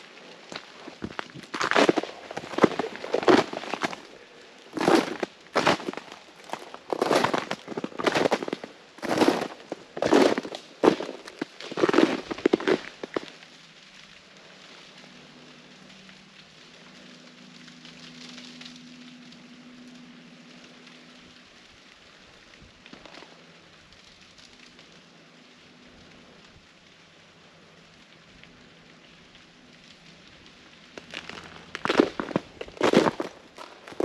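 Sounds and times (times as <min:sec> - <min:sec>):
footsteps crunching through ice: 0:00.0 - 0:13.4, 0:22.9 - 0:23.4, 0:30.9 - 0:34.0
freezing rain pattering on ice: 0:00.0 - 0:34.0.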